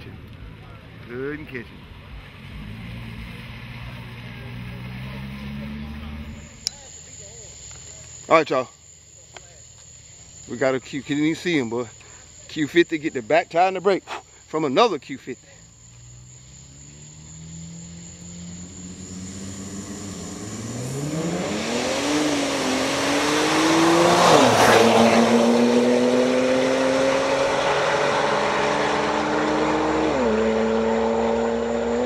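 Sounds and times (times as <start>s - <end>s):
cars racing at full throttle: 0.0s - 6.7s, 16.0s - 32.0s.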